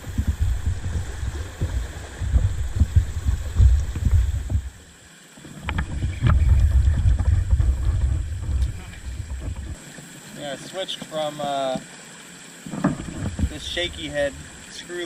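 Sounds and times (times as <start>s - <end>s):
wind buffeting microphone: 0.0s - 4.9s, 5.6s - 9.8s.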